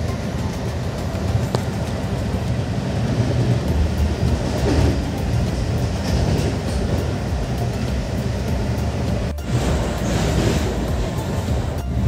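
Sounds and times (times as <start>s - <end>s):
faint wheel ticks: 0.0s - 9.3s
train coach rumble: 0.0s - 12.0s.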